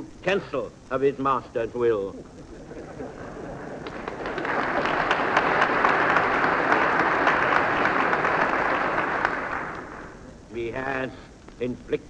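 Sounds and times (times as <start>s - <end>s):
large audience applauding: 2.2s - 10.5s.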